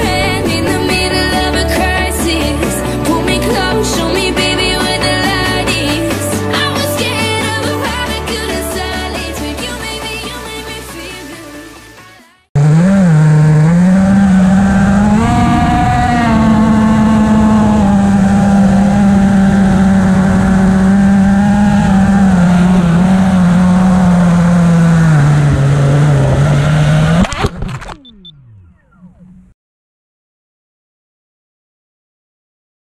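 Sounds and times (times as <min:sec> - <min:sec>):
quadcopter motors buzzing: 0:12.6 - 0:29.4
motors spinning down: 0:12.6 - 0:29.6.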